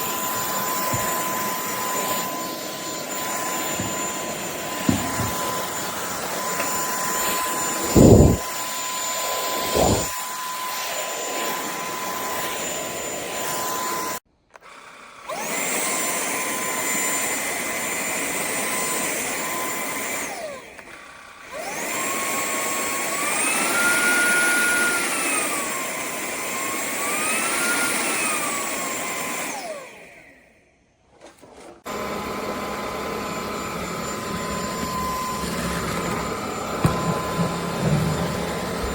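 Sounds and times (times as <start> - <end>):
vacuum motor whining: 0.0 - 30.6, 31.8 - 38.9
heavy thumps: 3.6 - 5.8, 6.6 - 8.5, 9.6 - 10.1.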